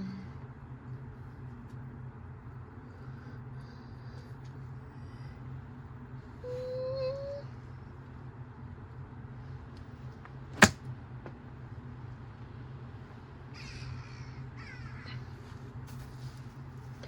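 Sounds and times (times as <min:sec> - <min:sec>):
steady low hum: 0:00.0 - 0:17.0
loud sharp crack: 0:10.6 - 0:10.8
harsh caws: 0:13.5 - 0:15.4.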